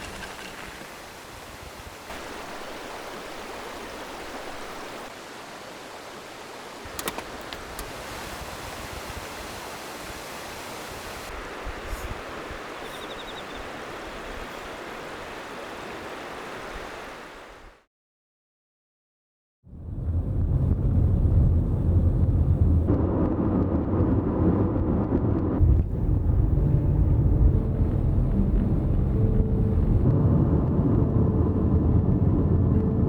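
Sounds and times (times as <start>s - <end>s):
river water rushing: 0.0s - 17.8s.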